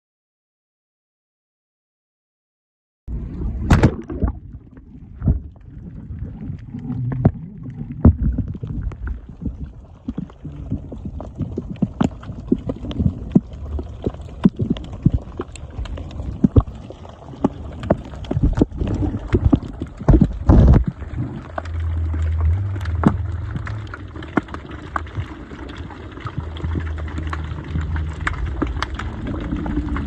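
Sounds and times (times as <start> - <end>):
muffled underwater wash: 3.1 - 30.0
underwater knocks and clicks: 3.6 - 30.0
low drone: 21.2 - 30.0.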